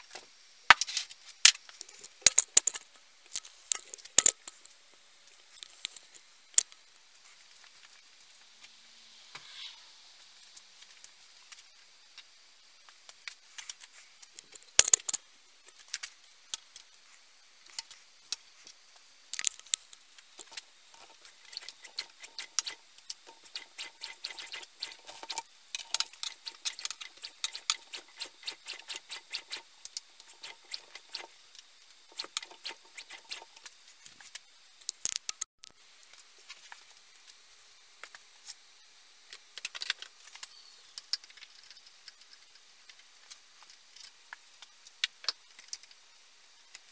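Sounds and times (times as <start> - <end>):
small metal parts clicking: 0.8 - 4.8, 13.0 - 35.5, 39.3 - 46.0.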